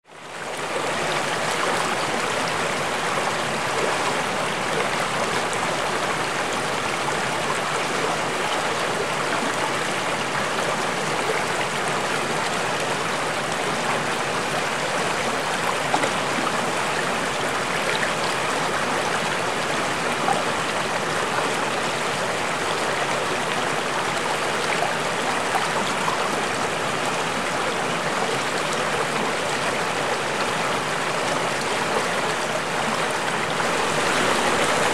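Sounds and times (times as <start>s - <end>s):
stream flowing over stones: 0.1s - 34.9s.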